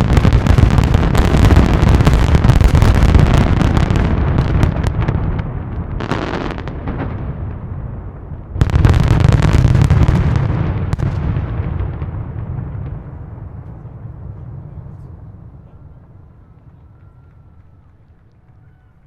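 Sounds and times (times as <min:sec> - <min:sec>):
deep rumble: 0:00.0 - 0:18.2
fireworks bursts and crackling bangs: 0:00.0 - 0:19.0.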